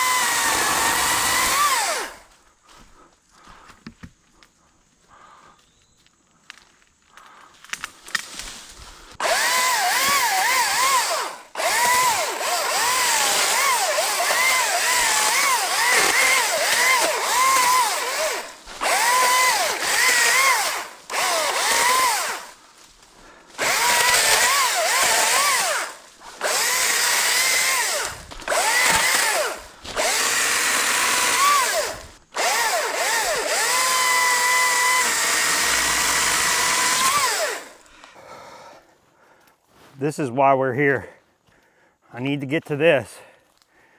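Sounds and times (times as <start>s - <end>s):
chainsaw cutting wood: 0.0s - 2.3s, 9.2s - 38.2s.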